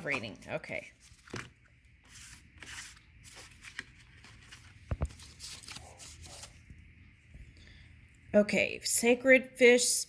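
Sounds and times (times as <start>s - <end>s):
cards rustling and sliding: 1.0s - 6.6s.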